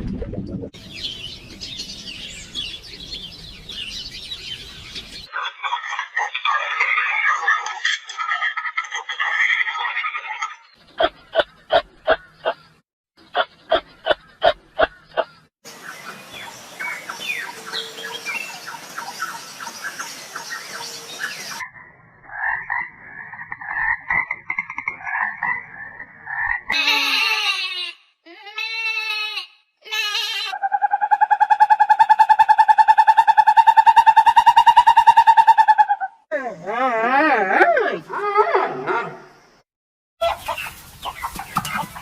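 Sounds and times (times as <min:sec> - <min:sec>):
croaks: 0:21.6 - 0:26.8.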